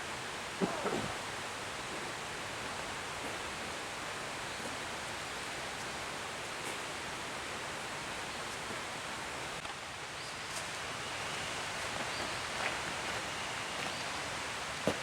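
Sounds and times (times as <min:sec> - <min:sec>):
faint ticks and rustles: 0:05.7 - 0:07.0, 0:09.6 - 0:14.2.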